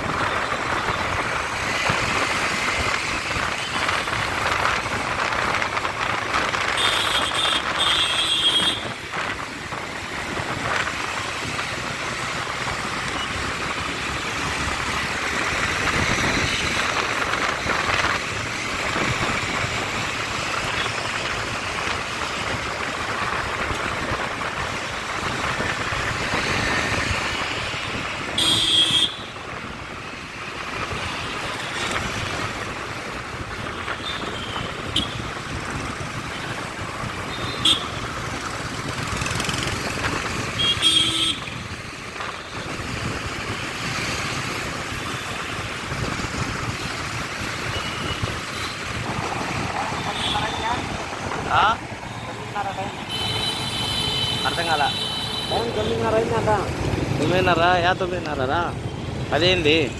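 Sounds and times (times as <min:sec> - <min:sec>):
road traffic: 0:00.0 - 0:59.9
vehicle horn: 0:28.4 - 0:29.3, 0:37.4 - 0:38.0, 0:40.6 - 0:41.6, 0:53.0 - 0:55.9.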